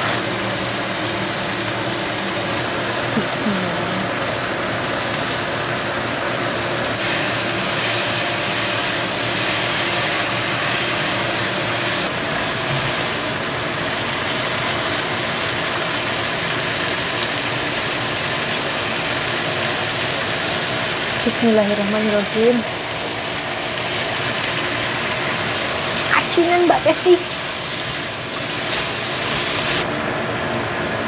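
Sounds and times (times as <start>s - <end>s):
steady hum: 0.0s - 15.3s
vegetables sizzling in a wok: 0.0s - 29.9s.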